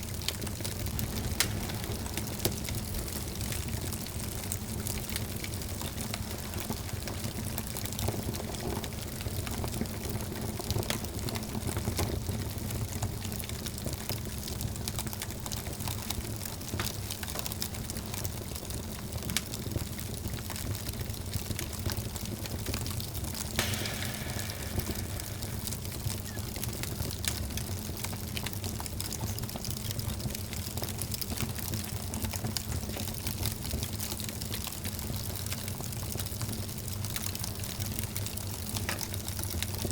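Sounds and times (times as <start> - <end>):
wood fire crackling: 0.0 - 39.9
brief hiss: 23.6 - 26.6.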